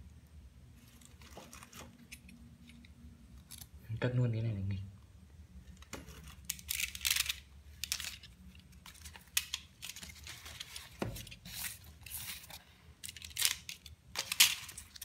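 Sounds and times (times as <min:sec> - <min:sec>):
paper wrapping tearing and crinkling: 0:05.9 - 0:15.0.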